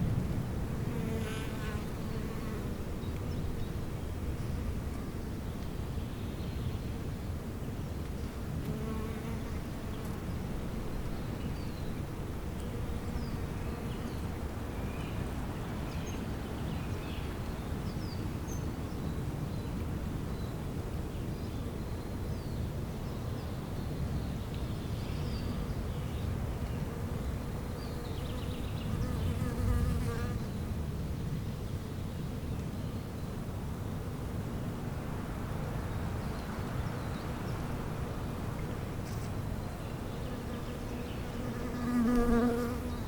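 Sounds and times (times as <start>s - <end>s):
bees buzzing: 40.4s - 43.0s.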